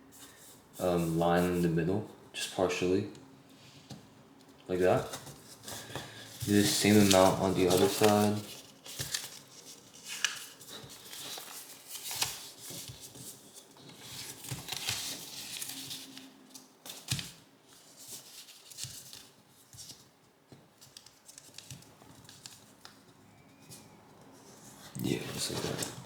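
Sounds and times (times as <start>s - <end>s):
paper rustling and crinkling: 4.7s - 20.1s, 20.8s - 23.0s, 25.0s - 26.0s.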